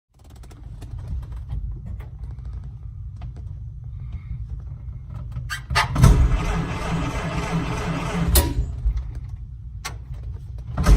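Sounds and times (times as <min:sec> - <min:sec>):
car engine starting and running: 0:04.9 - 0:10.9
car engine cranking: 0:05.1 - 0:10.9.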